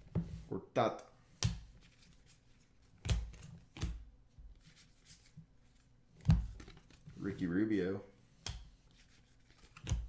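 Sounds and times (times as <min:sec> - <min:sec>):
cards rustling: 0:04.6 - 0:07.5, 0:08.9 - 0:10.0.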